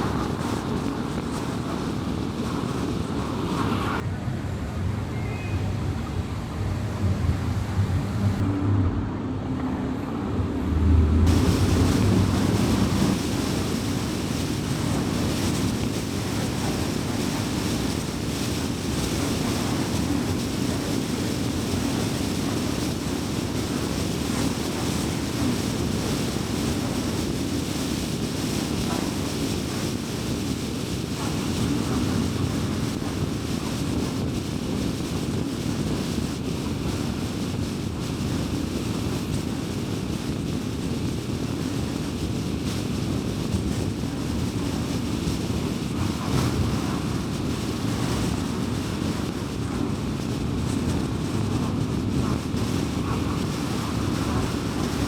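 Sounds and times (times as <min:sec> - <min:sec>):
road and tyre noise: 0:00.0 - 0:55.0
car engine hum: 0:06.8 - 0:15.8.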